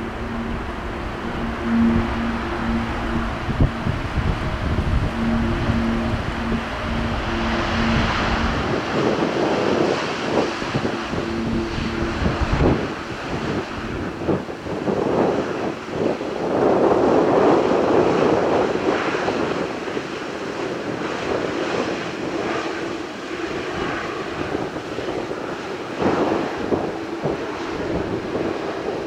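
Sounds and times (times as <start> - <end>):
jet engines roaring: 0.0 - 16.1
wind buffeting microphone: 0.0 - 29.0.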